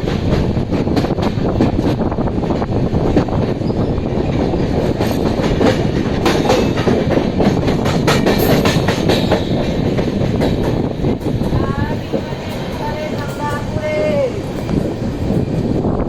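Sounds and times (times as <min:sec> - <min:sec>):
wheels clicking over rail joints: 0:00.0 - 0:13.8
train rumbling on rails: 0:00.0 - 0:16.0.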